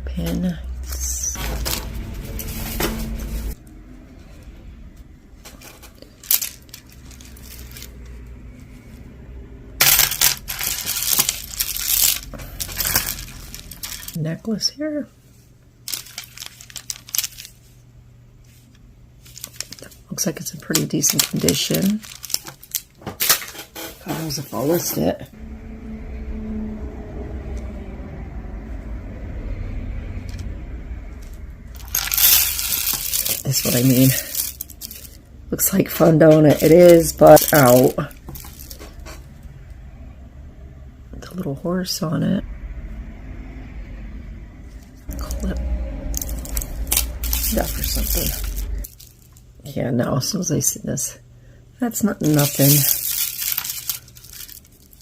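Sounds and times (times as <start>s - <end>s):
low steady rumble: 0.0s - 23.0s, 24.2s - 55.0s
jewelry clinking and rattling: 5.6s - 8.0s, 9.8s - 14.2s, 15.9s - 17.5s, 20.7s - 22.9s, 31.8s - 39.1s, 45.1s - 49.4s, 52.2s - 55.0s
packaging crinkling: 5.8s - 8.1s, 9.8s - 14.2s, 15.9s - 17.6s, 19.2s - 23.5s, 31.8s - 39.1s, 46.1s - 49.6s, 52.2s - 55.0s.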